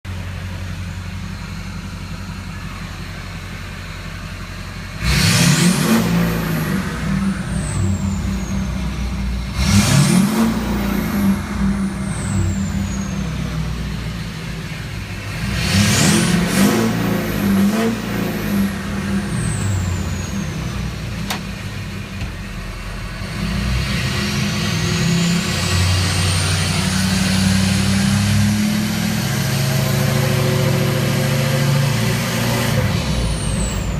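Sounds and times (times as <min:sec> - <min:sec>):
diesel engine revving: 0:00.1 - 0:33.9.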